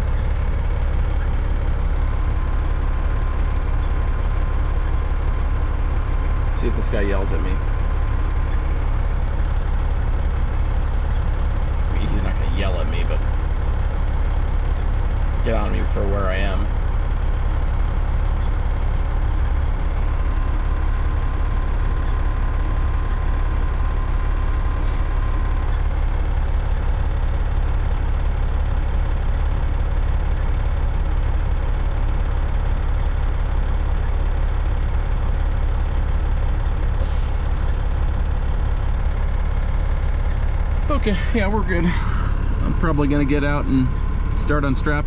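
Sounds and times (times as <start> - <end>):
diesel truck idling: 0.0 - 45.0.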